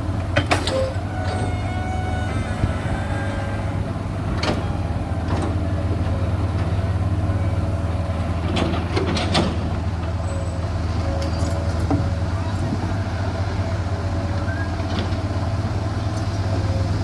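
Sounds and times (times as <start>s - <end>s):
heavy diesel machinery humming: 0.0s - 17.0s.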